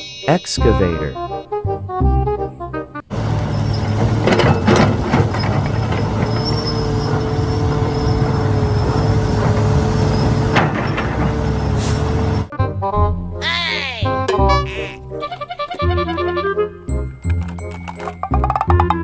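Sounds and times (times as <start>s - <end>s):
children's music jingle: 0.0s - 3.0s, 12.6s - 19.0s
excavator engine running: 3.0s - 12.5s.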